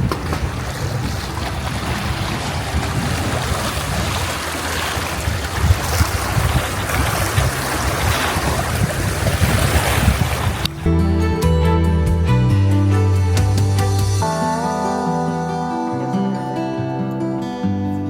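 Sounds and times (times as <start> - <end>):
rushing water: 0.0 - 10.9
wind buffeting microphone: 0.0 - 10.9.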